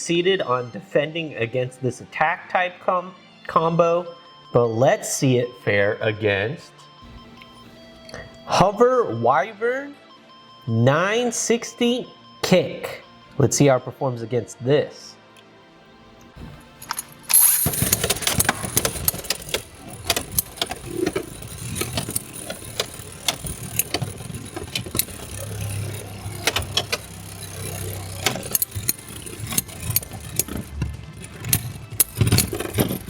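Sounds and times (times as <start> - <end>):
spinning tops whirring: 16.2 - 33.0
spinning tops clashing: 16.4 - 33.0.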